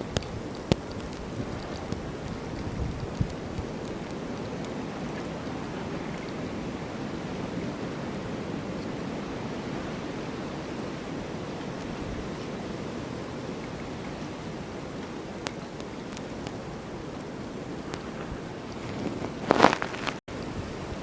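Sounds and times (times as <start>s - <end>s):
rushing snowstorm wind: 0.0s - 21.0s.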